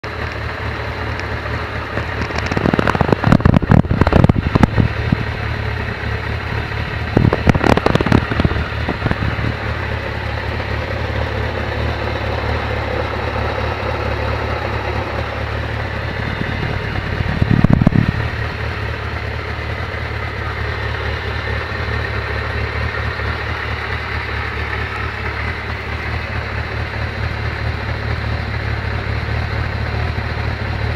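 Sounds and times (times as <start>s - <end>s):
motorcycle engine idling: 0.0s - 30.9s
motorcycle engine revving: 0.0s - 30.9s.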